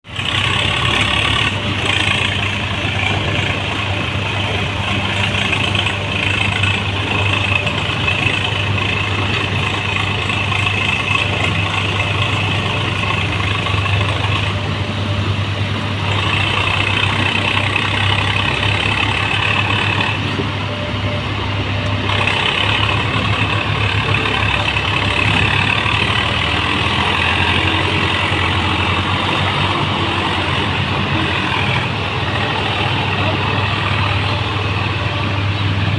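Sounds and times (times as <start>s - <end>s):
tractor diesel engines droning: 0.0s - 35.9s.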